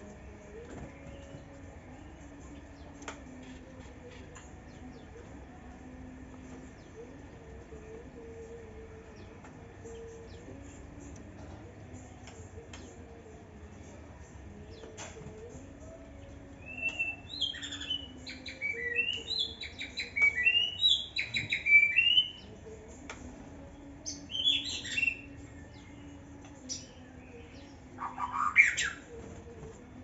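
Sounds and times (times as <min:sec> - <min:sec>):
bird singing varied phrases: 0:16.6 - 0:22.5, 0:24.0 - 0:26.0, 0:26.7 - 0:29.1
sweeping bird call: 0:28.0 - 0:29.0.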